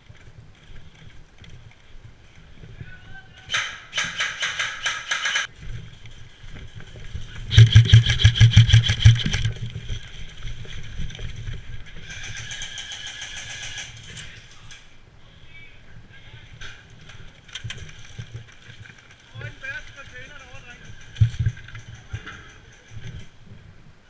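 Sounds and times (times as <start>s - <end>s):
airsoft gun firing full auto: 3.5s - 5.5s, 7.5s - 9.5s, 12.0s - 14.0s.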